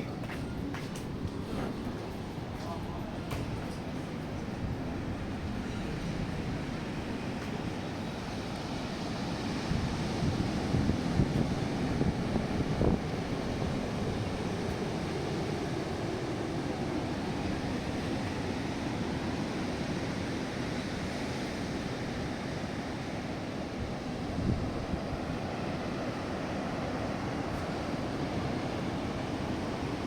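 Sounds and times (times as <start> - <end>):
wind buffeting microphone: 0.0 - 16.2, 23.8 - 26.2
strong wind: 0.0 - 30.0.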